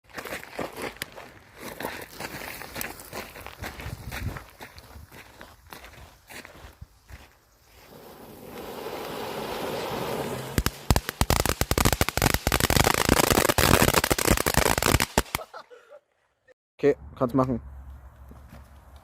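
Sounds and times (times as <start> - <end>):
firework hiss: 7.7 - 15.4
firework cracks and bangs: 7.9 - 15.5.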